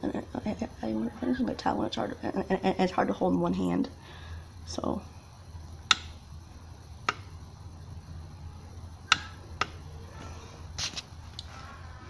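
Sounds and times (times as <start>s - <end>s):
steady low hum: 0.0s - 12.0s
sharp clicks: 5.9s - 6.2s.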